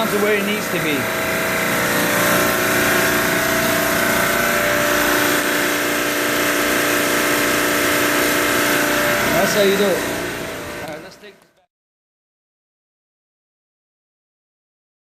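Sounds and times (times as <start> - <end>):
compressor droning: 0.0 - 11.7.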